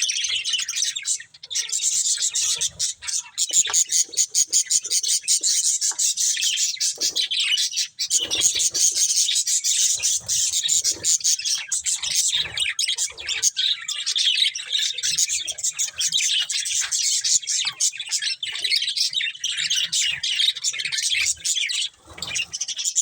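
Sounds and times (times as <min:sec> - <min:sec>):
budgerigars chirping: 0:00.0 - 0:23.0.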